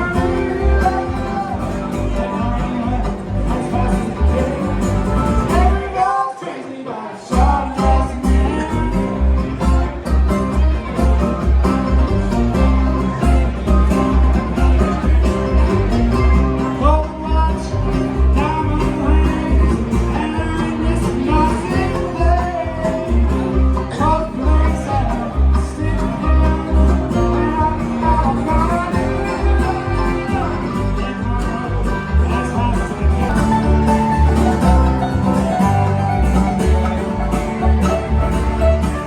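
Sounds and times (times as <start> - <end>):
banjo: 0.0 - 39.0
guitar: 0.0 - 39.0
steady bass beat: 17.3 - 39.0.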